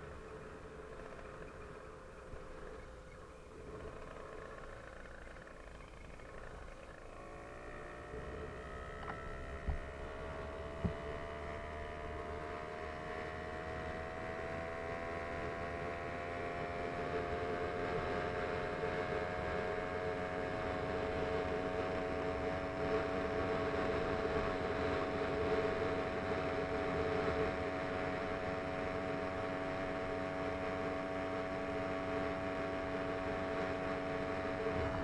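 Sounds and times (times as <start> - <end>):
small engine running: 0.0 - 35.0.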